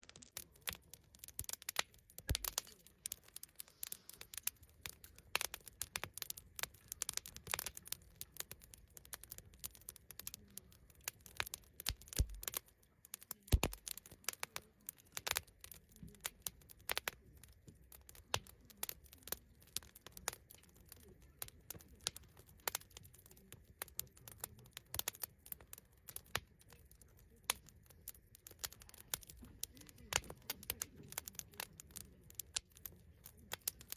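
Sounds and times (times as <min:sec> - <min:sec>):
campfire crackling and popping: 0:00.0 - 0:33.9.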